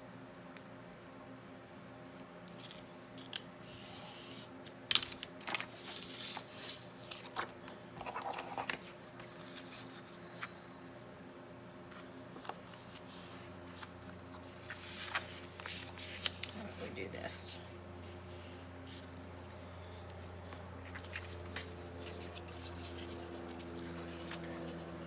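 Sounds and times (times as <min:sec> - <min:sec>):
paper rustling: 0:05.0 - 0:11.0, 0:11.9 - 0:17.1, 0:18.0 - 0:25.0.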